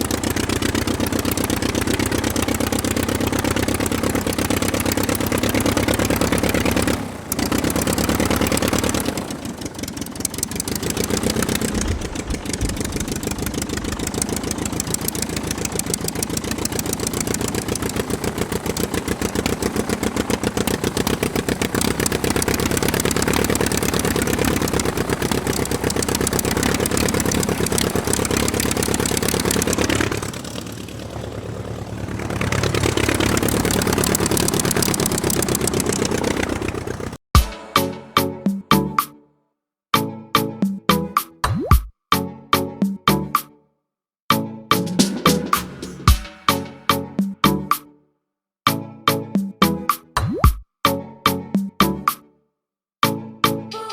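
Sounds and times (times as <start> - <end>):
diesel engine running: 0.0 - 37.2, 44.8 - 47.2.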